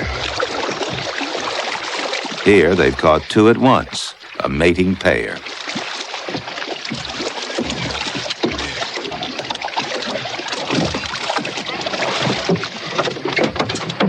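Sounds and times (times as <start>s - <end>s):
water sloshing around boat: 0.0s - 14.0s.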